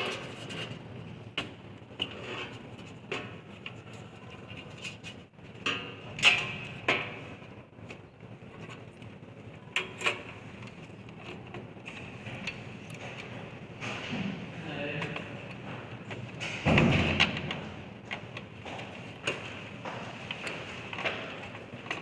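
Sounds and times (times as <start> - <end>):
computer case parts clicking: 0.0 - 22.0.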